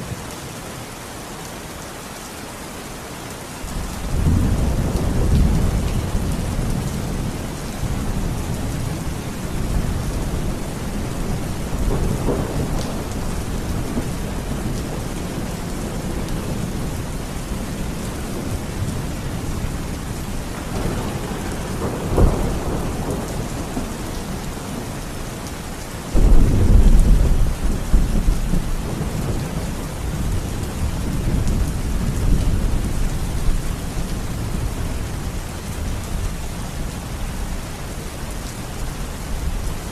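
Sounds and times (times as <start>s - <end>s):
steady rain: 0.0s - 39.9s
loud thunderclap rumbling: 3.7s - 24.9s, 26.1s - 35.0s
low rolling thunder: 3.7s - 25.4s, 26.1s - 37.6s.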